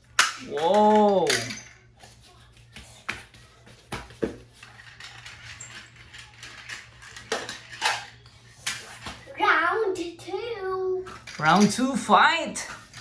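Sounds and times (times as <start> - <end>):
toy trucks rolling and clattering: 0.0 - 2.4, 3.9 - 9.3, 11.1 - 13.0.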